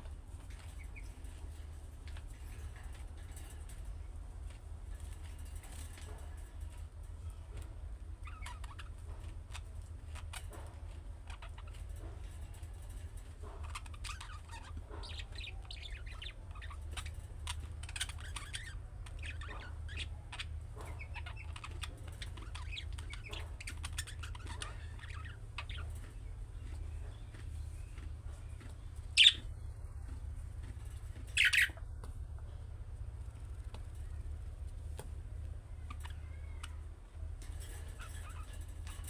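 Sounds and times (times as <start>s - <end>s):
steady low hum: 0.0s - 39.0s
budgerigars chattering: 13.7s - 27.2s, 29.1s - 29.5s, 31.2s - 31.8s.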